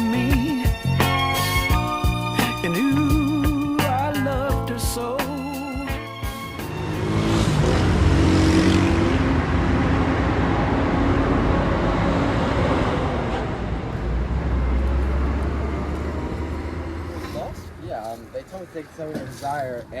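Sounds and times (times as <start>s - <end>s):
car engine humming: 0.0s - 20.0s
tyres rushing on road: 5.8s - 20.0s
deeper engine hum: 6.0s - 19.9s.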